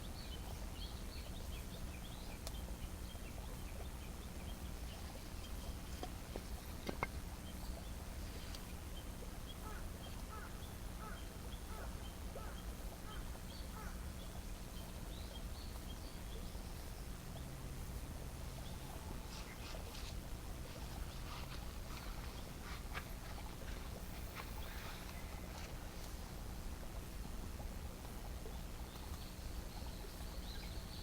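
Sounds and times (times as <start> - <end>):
bird chirping: 0.0 - 17.6, 28.1 - 31.0.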